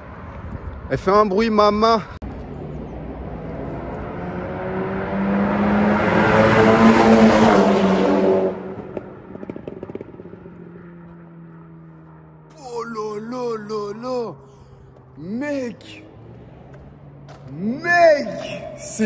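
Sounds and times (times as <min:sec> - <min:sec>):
car engine revving: 0:02.6 - 0:19.0
exhaust crackles and pops: 0:08.7 - 0:11.3.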